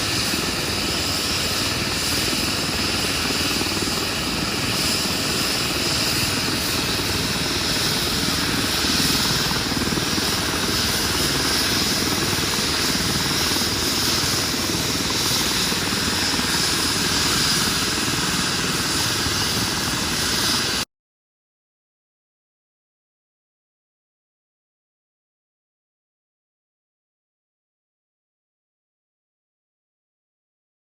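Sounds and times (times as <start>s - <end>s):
helicopter rotor blades beating: 0.0s - 20.8s.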